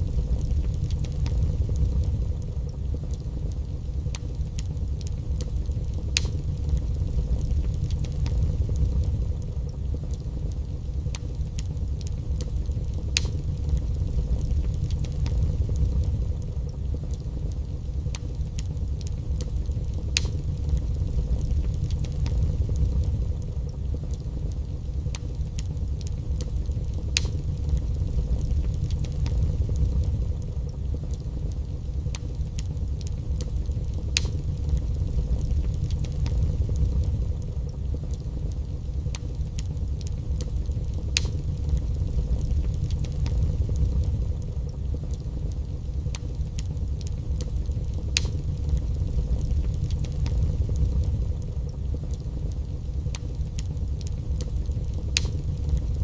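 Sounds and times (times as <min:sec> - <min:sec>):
fire crackling and popping: 0:00.0 - 0:56.0
fire roaring: 0:00.0 - 0:56.0.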